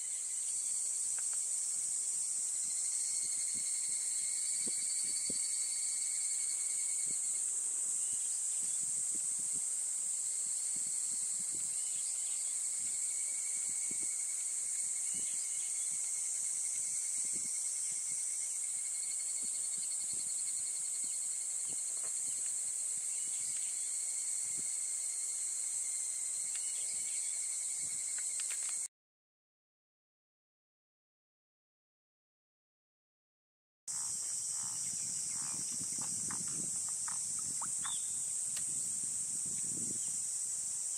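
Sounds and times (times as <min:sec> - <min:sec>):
high-pitched insect drone: 0:00.0 - 0:28.9, 0:33.9 - 0:40.9
insect trilling on lower note: 0:33.9 - 0:38.9.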